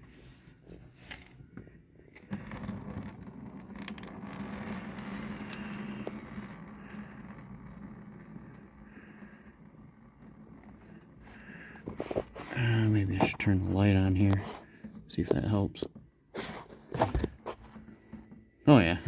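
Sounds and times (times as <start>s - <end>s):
oil pouring into a pan: 2.3s - 11.9s.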